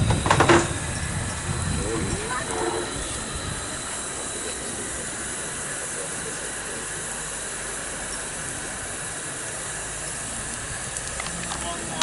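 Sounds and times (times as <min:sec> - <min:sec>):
train hissing: 0:00.0 - 0:12.0.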